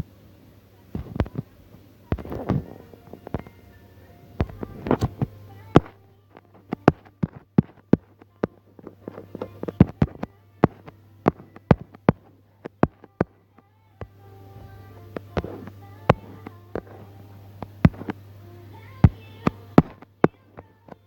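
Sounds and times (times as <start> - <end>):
steady low hum: 0.0 - 21.0
sharp irregular clicks: 4.4 - 14.1.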